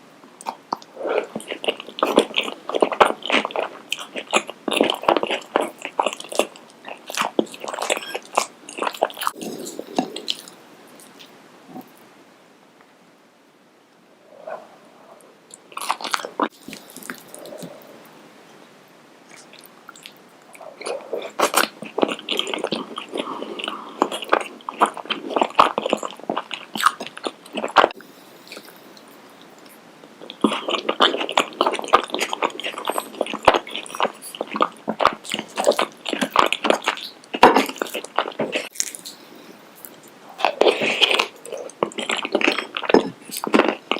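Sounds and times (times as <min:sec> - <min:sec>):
crunchy chewing: 0:00.4 - 0:12.0, 0:19.3 - 0:43.9
soft mouth sounds: 0:04.0 - 0:12.1, 0:14.2 - 0:18.2.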